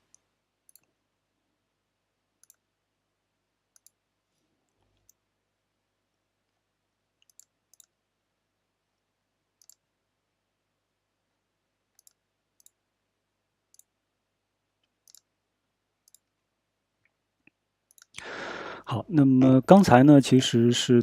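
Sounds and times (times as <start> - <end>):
computer mouse clicks: 0.0 - 1.0, 2.4 - 2.6, 3.7 - 4.0, 4.7 - 5.2, 7.2 - 8.0, 9.6 - 9.9, 11.9 - 12.8, 13.7 - 13.9, 14.8 - 15.3, 16.0 - 16.4, 17.9 - 18.2.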